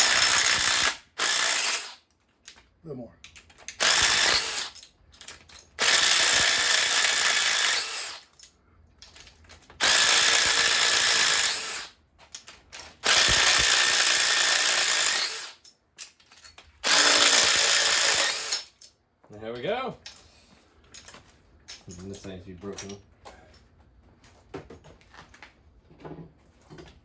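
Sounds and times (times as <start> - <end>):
power tool motor whine: 3.8 - 4.7, 13.0 - 15.5, 16.8 - 18.6.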